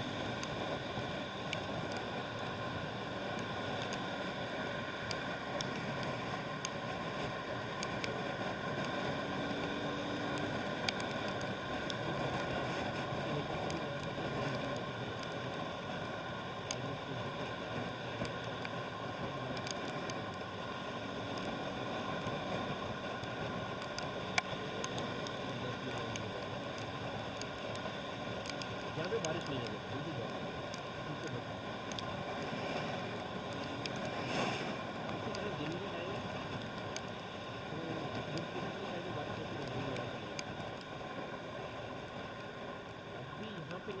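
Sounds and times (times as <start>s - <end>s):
road traffic noise: 0.0s - 44.0s
faint clicks: 3.3s - 4.0s, 10.3s - 12.6s, 19.4s - 20.4s, 23.2s - 40.9s.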